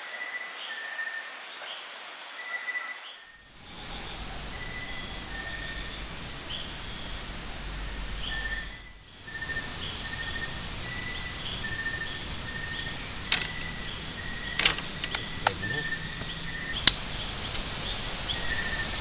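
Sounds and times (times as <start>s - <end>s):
insects chirping: 3.3s - 19.0s
rain hissing: 3.4s - 19.0s
sharp click: 14.4s - 17.7s.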